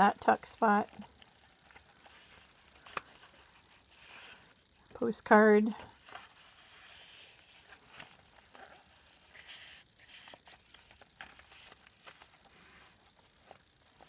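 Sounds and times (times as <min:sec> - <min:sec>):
paper pages rustling: 0:00.2 - 0:04.6, 0:05.8 - 0:14.0.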